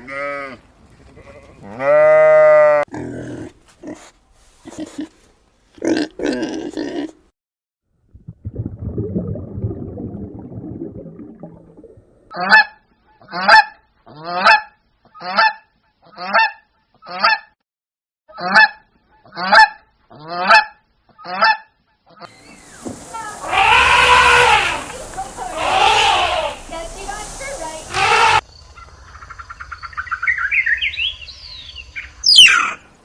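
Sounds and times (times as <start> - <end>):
goose honking: 23.2 - 26.8, 27.8 - 28.4.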